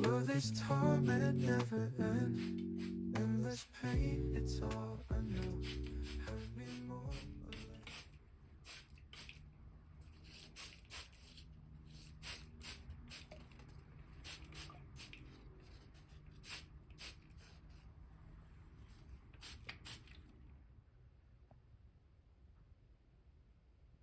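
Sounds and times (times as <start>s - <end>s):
low steady hum: 0.0s - 8.5s.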